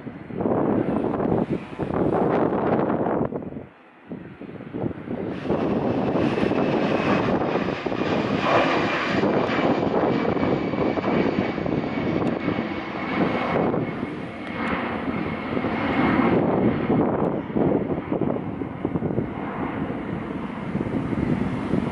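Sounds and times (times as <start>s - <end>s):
jet engines rushing: 0.0s - 21.9s
high engine whine: 5.1s - 21.9s.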